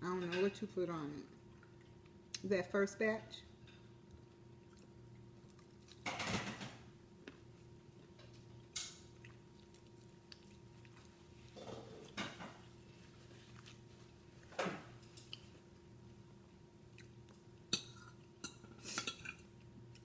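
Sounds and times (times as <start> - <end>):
quiet chewing: 1.3 - 2.4, 4.0 - 6.1, 7.2 - 16.0, 16.8 - 20.0.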